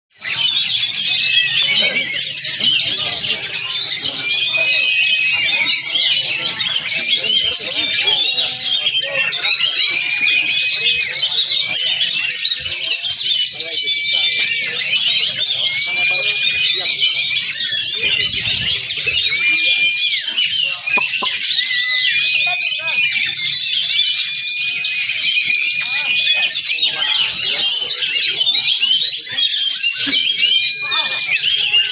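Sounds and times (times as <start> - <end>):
songbird singing: 20.6 - 23.0.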